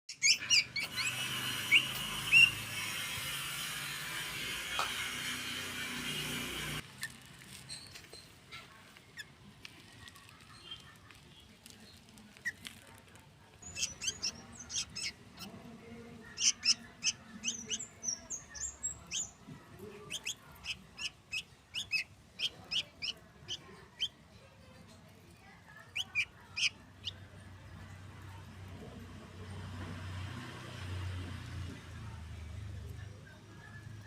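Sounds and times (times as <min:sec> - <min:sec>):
young bird begging chirps: 0:00.1 - 0:02.6, 0:13.6 - 0:15.5, 0:16.3 - 0:19.4, 0:20.1 - 0:24.2, 0:25.9 - 0:27.2.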